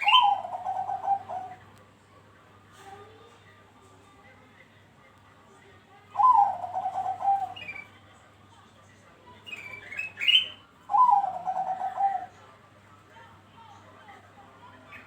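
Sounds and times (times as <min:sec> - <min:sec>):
dove cooing: 0:00.0 - 0:01.6, 0:06.2 - 0:07.7, 0:10.9 - 0:12.4.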